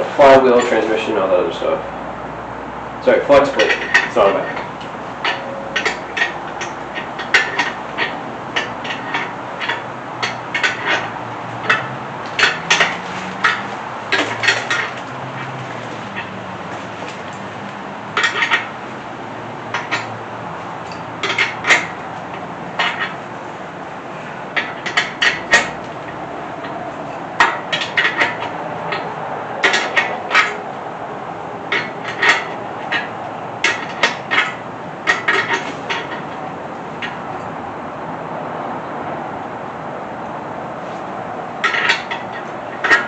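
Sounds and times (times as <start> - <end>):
wrench clinking on metal: 3.4 - 16.4, 18.2 - 18.7, 19.7 - 20.2, 20.8 - 23.2, 24.6 - 30.6, 41.6 - 43.0.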